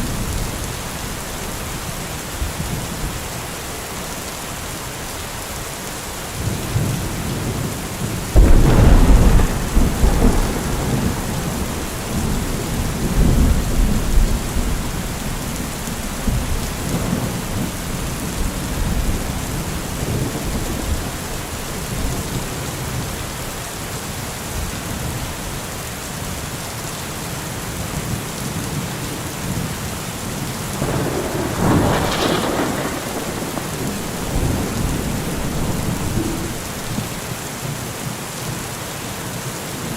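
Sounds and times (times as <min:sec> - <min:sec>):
steady rain: 0:00.0 - 0:39.9
thunder rumbling: 0:06.4 - 0:23.3, 0:30.8 - 0:37.4.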